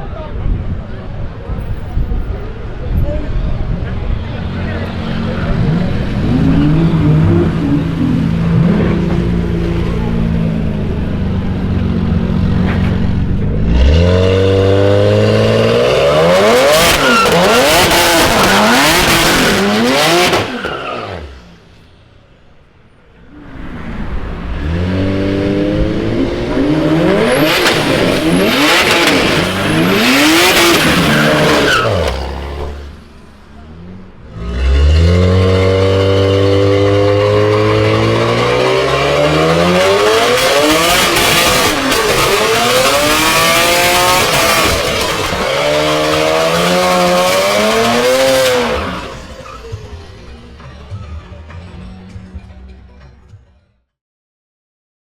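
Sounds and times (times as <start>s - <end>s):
car engine revving hard: 4.3s - 12.6s, 13.4s - 21.4s, 24.5s - 33.0s, 34.2s - 49.6s
tyre squeal: 27.1s - 32.8s, 40.6s - 50.1s.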